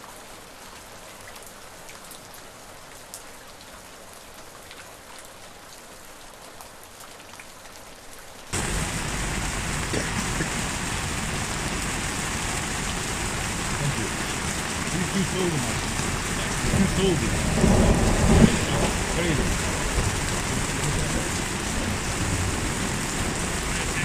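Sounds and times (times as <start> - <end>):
rain falling: 0.0 - 24.0
raindrops ticking: 8.6 - 24.0.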